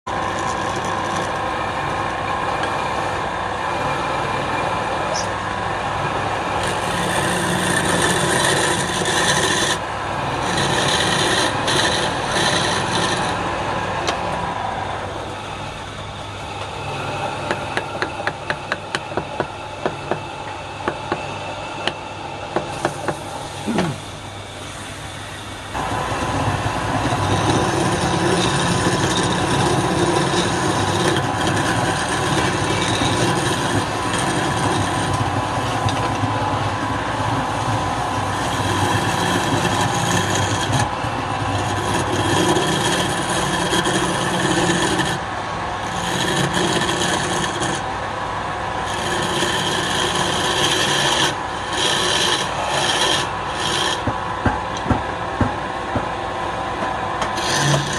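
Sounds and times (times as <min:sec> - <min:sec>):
turning tool scraping wood: 0:00.1 - 0:01.5, 0:06.6 - 0:13.5, 0:22.6 - 0:24.1, 0:25.8 - 0:47.9, 0:48.8 - 0:54.2, 0:57.2 - 0:57.9
wood lathe motor hum: 0:00.1 - 0:20.2, 0:21.8 - 0:55.5, 0:56.9 - 0:57.9.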